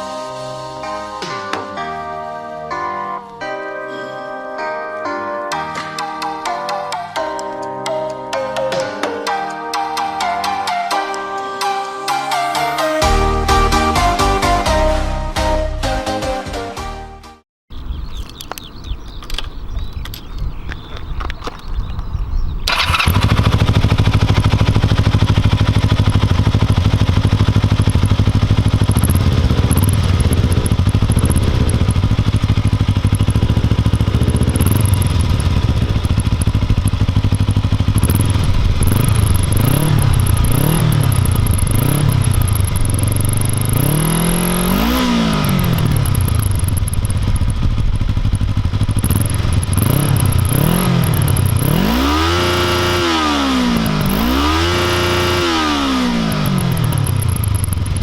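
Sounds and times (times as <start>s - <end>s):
motorcycle engine revving: 22.6s - 58.0s.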